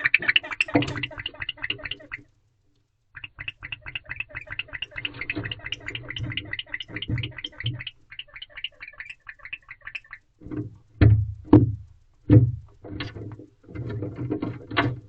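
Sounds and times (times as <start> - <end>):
owl chirping: 0.0 - 2.3, 3.1 - 10.4.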